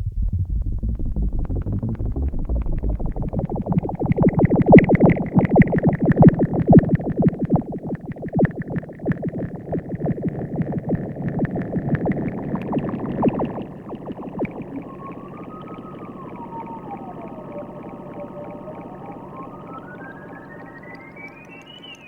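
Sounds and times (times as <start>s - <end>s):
high held synth tone: 0.0s - 4.4s, 13.8s - 22.0s
synthesizer plucked notes: 0.0s - 6.9s, 12.4s - 22.0s.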